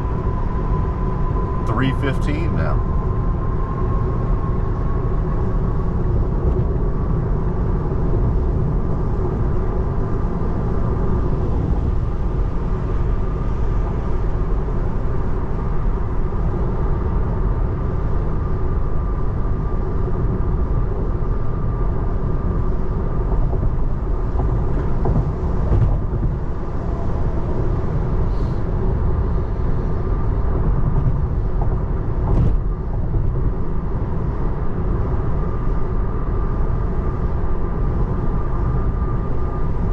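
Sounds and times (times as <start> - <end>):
faint steady whine: 0.0 - 11.2
road and tyre noise: 0.0 - 39.9.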